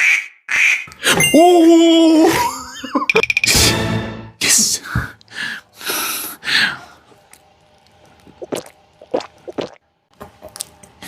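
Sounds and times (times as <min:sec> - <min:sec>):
mouth clicks and pops: 0:08.2 - 0:09.8.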